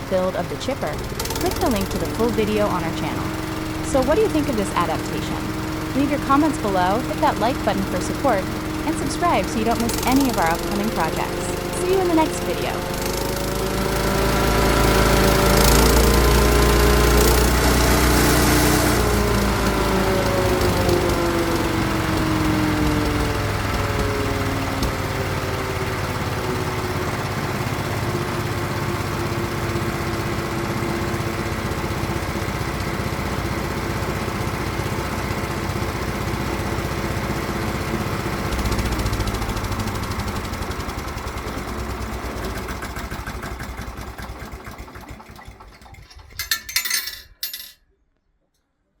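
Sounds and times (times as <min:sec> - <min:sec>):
short loud engine bursts: 0:00.0 - 0:28.0
gasoline engine running: 0:00.0 - 0:47.5.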